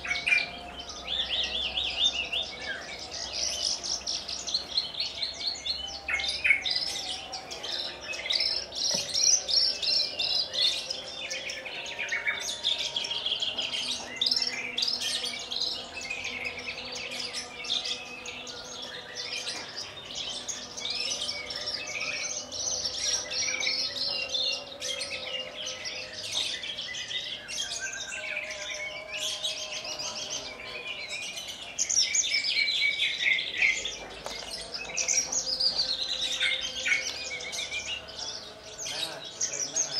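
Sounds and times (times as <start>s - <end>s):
lark singing trills and chirps: 0.0s - 39.9s.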